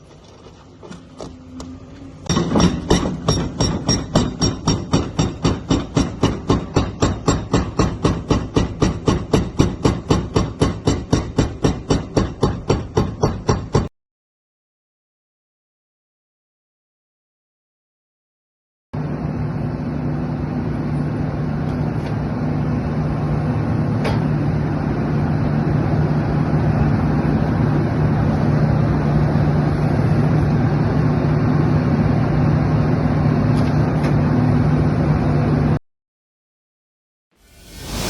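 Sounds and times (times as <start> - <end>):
diesel engine under load: 0.0 - 10.6.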